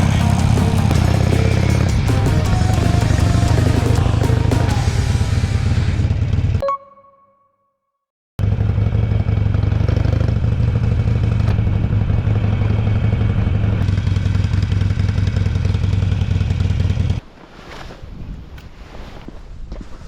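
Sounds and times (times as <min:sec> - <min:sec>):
motorcycle engine running: 0:00.0 - 0:06.6, 0:08.4 - 0:17.2.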